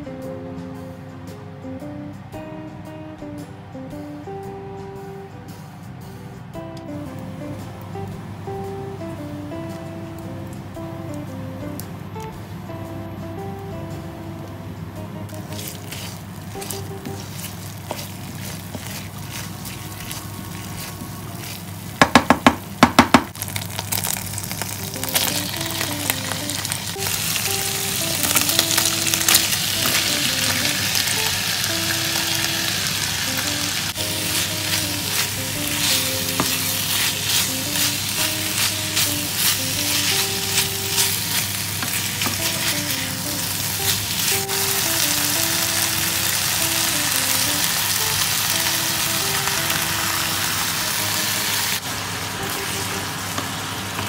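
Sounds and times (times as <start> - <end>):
food sizzling in a frying pan: 15.3 - 54.0
wooden spatula stirring: 15.4 - 25.5, 34.0 - 42.9.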